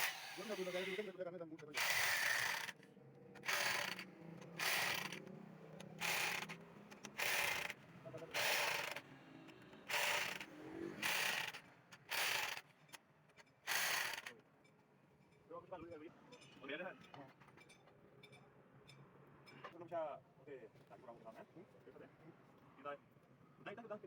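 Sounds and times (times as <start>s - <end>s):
rasping hand tool strokes: 0.0s - 1.1s, 9.9s - 12.6s.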